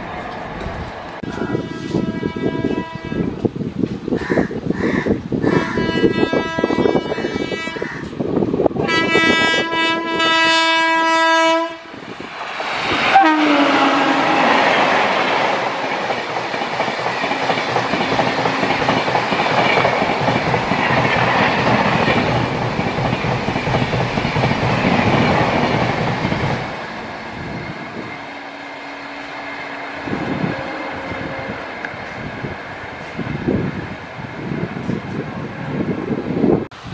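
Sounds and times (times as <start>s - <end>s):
train wheels rushing on rails: 0.0s - 36.9s
train horn blasts: 1.2s - 3.4s, 5.4s - 8.1s, 8.8s - 12.0s, 13.1s - 14.6s, 28.0s - 31.8s.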